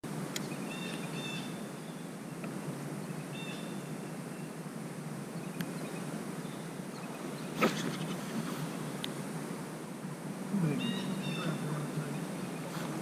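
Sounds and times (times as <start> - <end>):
low outdoor rumble: 0.0 - 13.0
bird chirping: 0.4 - 2.1, 3.0 - 4.6, 10.6 - 13.0.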